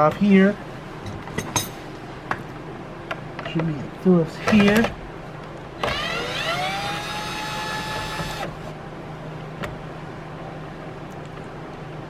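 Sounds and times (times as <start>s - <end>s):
cordless drill whining: 5.8s - 8.6s.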